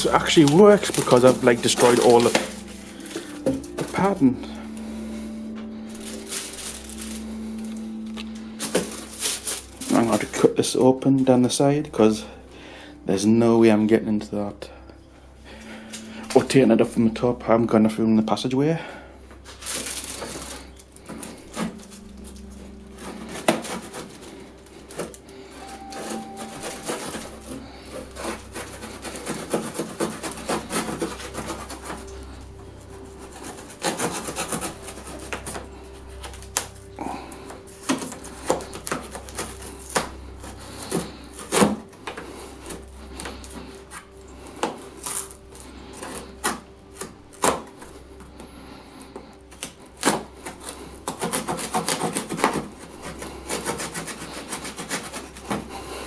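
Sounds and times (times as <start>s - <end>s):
knife cutting cardboard: 0.0s - 4.2s, 23.0s - 25.2s, 26.2s - 32.1s, 33.1s - 35.6s, 37.8s - 43.3s, 49.6s - 55.8s.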